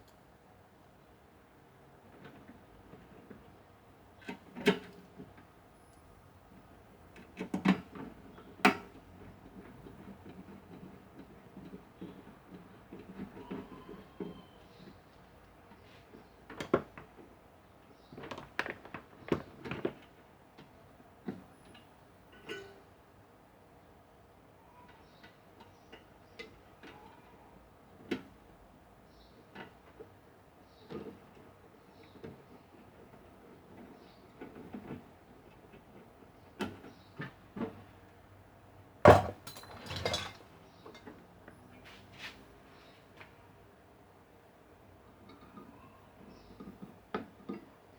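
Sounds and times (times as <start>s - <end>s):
metallic ring: 22.4s - 22.8s
hard objects knocking and clinking: 39.1s - 40.4s
objects clattering: 39.1s - 41.2s.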